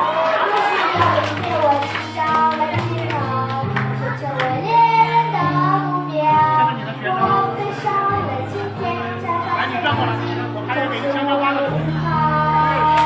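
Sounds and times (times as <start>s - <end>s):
child singing: 0.6s - 10.5s, 11.1s - 13.0s
instrumental accompaniment: 0.6s - 13.0s.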